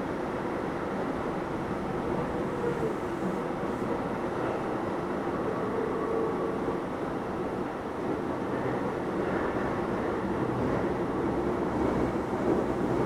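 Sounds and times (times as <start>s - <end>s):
train wheels rumbling on rails: 9.3s - 13.0s.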